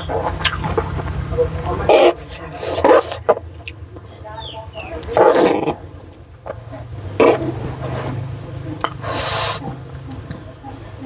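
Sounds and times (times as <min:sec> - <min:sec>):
hissy slurp: 0:00.0 - 0:03.3, 0:07.1 - 0:10.2
chewing: 0:00.0 - 0:11.0
wet mouth smack: 0:00.4 - 0:01.2.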